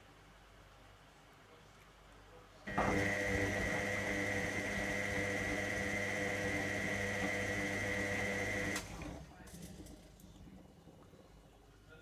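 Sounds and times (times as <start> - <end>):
washing machine motor whining: 2.7 - 9.4.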